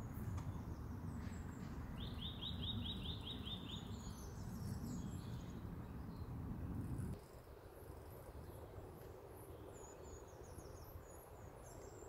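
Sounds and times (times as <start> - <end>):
songbird singing rising notes: 0.0 - 6.3.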